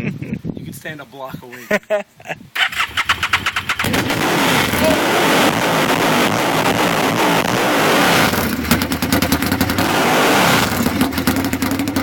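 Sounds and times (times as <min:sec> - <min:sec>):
straight-piped engine revving: 0:03.1 - 0:12.0
engine popping idle: 0:08.3 - 0:09.9, 0:10.7 - 0:12.0.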